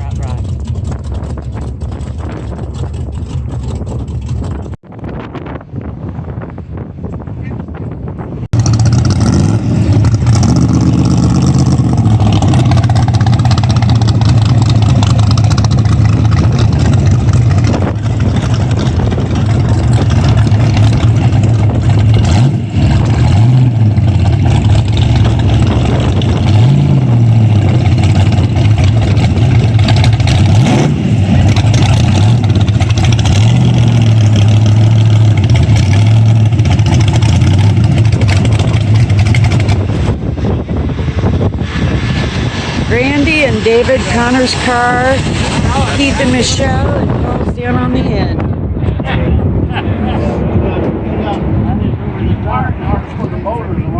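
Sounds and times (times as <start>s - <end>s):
car engine idling: 0.0s - 4.8s, 9.9s - 41.6s
engine throttle blips: 0.0s - 53.9s.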